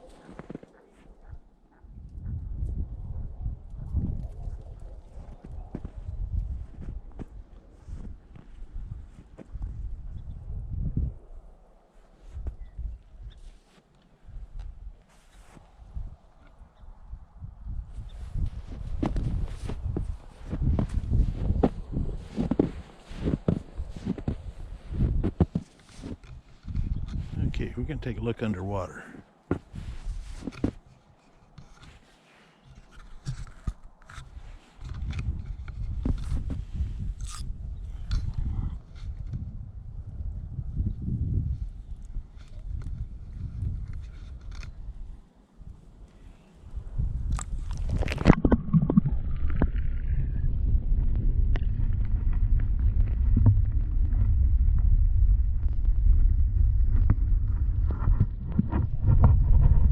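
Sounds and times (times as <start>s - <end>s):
microphone handling noise: 2.1s - 11.2s, 17.4s - 45.1s, 46.7s - 59.9s
muffled underwater rumble: 17.2s - 28.8s, 46.3s - 59.9s.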